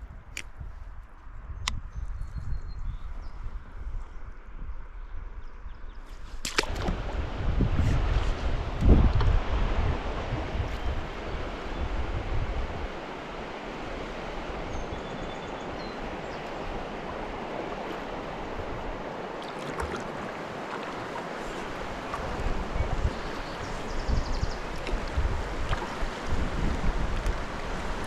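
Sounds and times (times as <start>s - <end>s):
wind rumbling on microphone: 0.0s - 28.0s
river water rushing over riffles: 6.5s - 28.0s.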